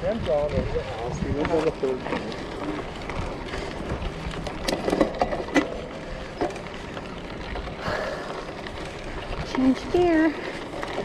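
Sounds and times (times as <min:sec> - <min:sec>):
bicycle clicks and knocks: 0:00.0 - 0:11.0
wind and tyre rolling noise: 0:00.0 - 0:11.0.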